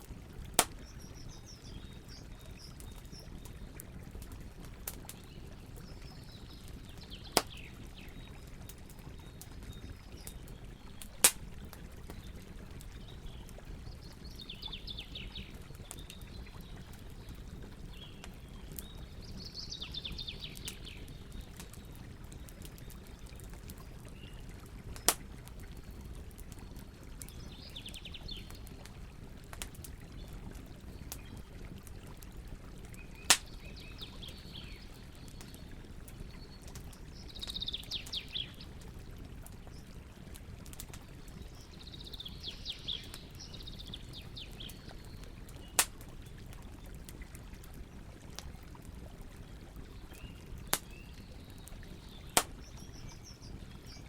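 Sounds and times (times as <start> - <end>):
campfire crackling: 0.0 - 54.0
sharp fire pops: 0.6 - 1.0, 11.2 - 11.5, 25.0 - 25.3, 33.3 - 33.5, 45.7 - 46.0, 52.4 - 52.7.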